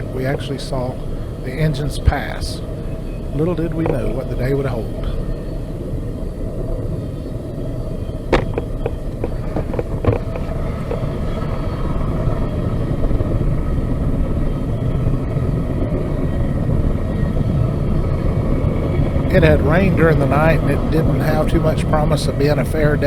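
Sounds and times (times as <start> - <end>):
train clanks: 0.0 - 5.5, 7.8 - 13.8
freight train cars rumbling: 0.0 - 23.0.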